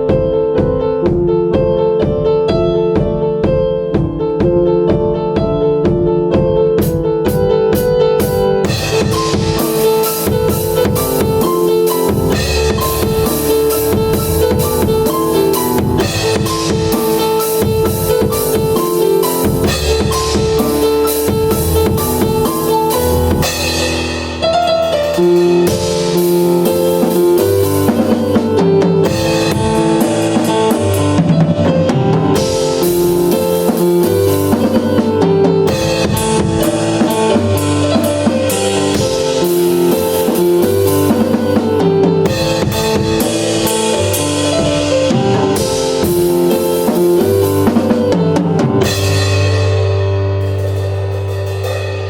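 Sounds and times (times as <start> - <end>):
drum kit groove: 0.0 - 52.0
piano chords and melody: 0.0 - 52.0.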